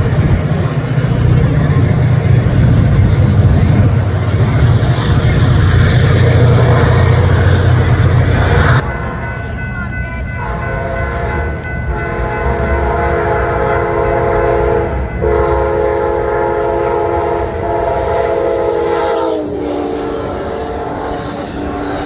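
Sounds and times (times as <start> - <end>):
low rumble of train: 0.0 - 22.0
train air horn chord: 10.4 - 22.0.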